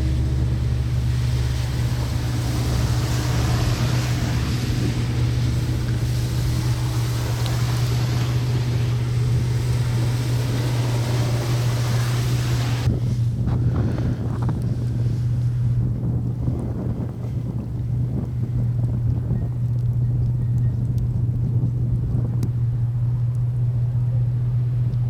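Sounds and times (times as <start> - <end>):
even hiss: 0.0 - 12.9
vehicle drone: 0.0 - 25.0.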